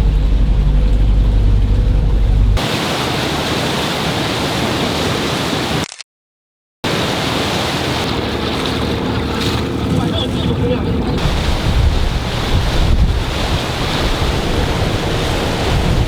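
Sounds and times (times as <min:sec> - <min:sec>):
boat engine humming: 0:00.0 - 0:05.7, 0:06.9 - 0:16.0
water rushing past boat: 0:00.0 - 0:05.9, 0:06.8 - 0:16.0
wind on microphone: 0:09.4 - 0:16.0.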